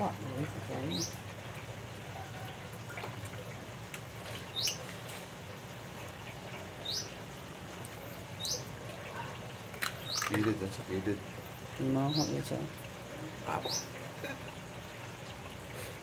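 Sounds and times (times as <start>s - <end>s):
bird chirping: 4.5s - 4.8s, 6.8s - 7.2s, 8.4s - 8.7s, 9.8s - 10.4s, 13.5s - 14.0s.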